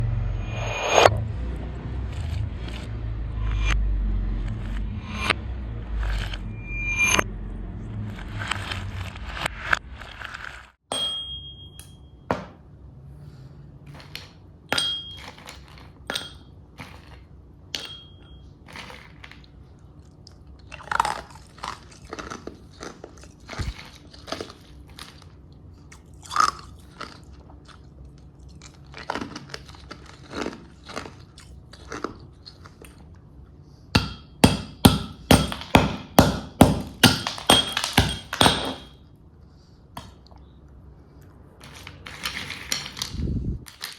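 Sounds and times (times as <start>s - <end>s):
ice being chewed: 18.7s - 33.3s.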